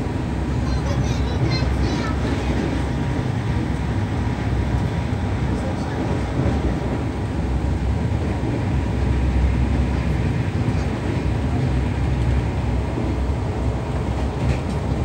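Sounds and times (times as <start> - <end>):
train rumbling at speed: 0.0 - 15.0.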